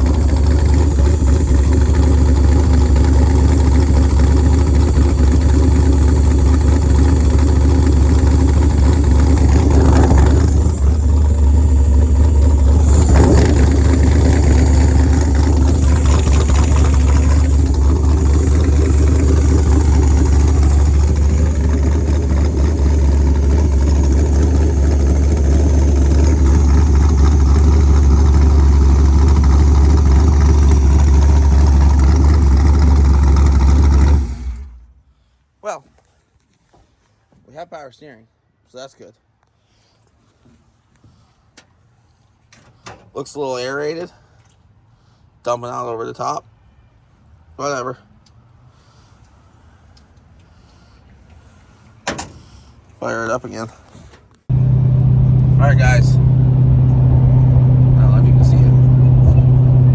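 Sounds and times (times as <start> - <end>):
car engine idling: 0.0 - 35.2, 48.8 - 59.9.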